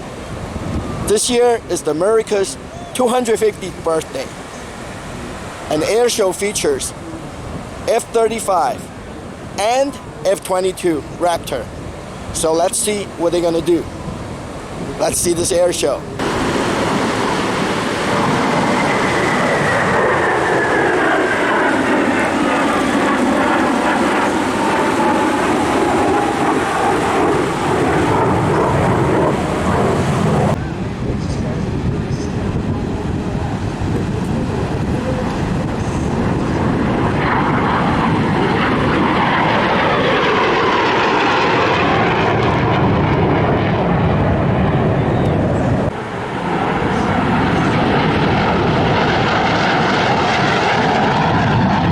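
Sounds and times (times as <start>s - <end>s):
jet aircraft passing overhead: 0.0s - 51.9s.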